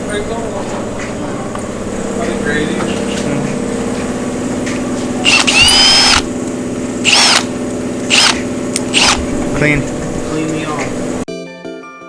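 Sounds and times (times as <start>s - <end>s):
steady machine hum: 0.0s - 11.3s.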